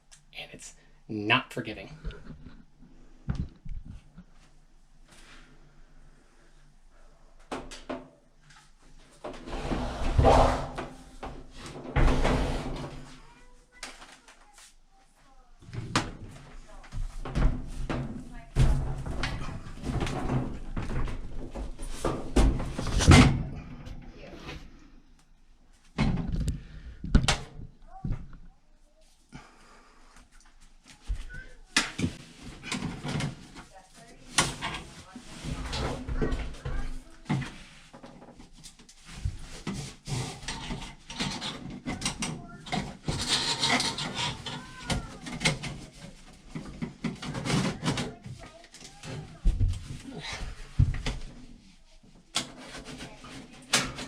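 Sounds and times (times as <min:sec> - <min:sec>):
hose rubbing and scraping: 0:09.4 - 0:10.8, 0:42.8 - 0:46.1.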